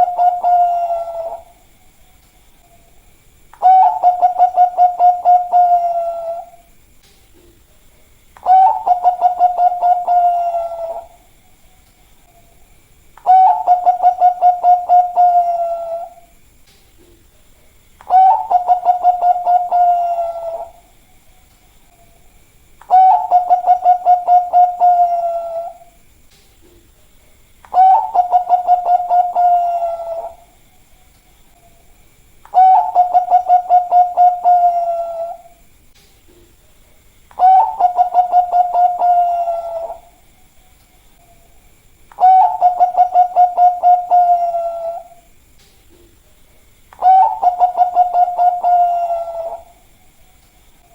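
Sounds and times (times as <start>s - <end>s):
dove cooing: 0.0s - 1.6s, 3.6s - 6.7s, 8.4s - 11.3s, 13.2s - 16.3s, 18.0s - 21.0s, 22.8s - 26.0s, 27.7s - 30.6s, 32.5s - 35.6s, 37.3s - 40.2s, 42.2s - 45.3s, 47.0s - 49.9s.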